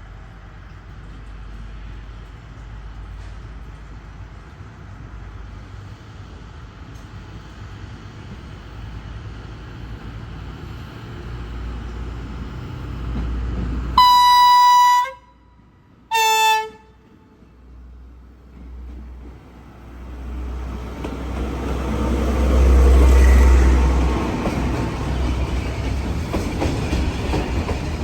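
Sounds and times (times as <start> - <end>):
train rumbling: 0.0 - 28.0
train horn blasts: 14.0 - 17.4.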